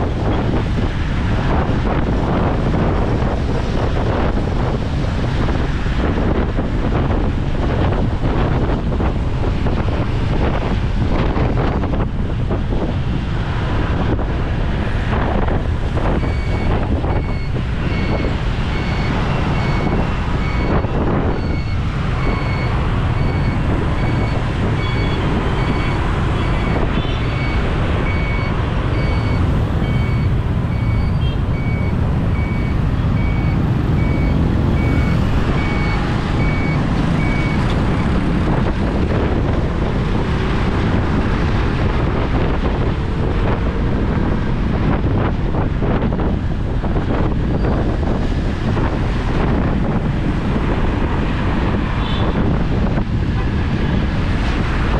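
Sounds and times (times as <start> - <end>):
traffic noise: 0.0 - 54.9
wind buffeting microphone: 0.0 - 54.9
short electronic beeps: 16.2 - 38.2.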